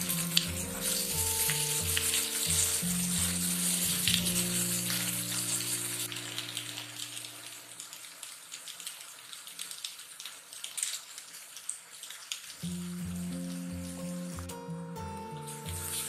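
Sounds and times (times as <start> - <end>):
background music: 0.0 - 7.7, 12.6 - 16.0
vegetables sizzling in oil: 0.0 - 8.5, 12.6 - 16.0.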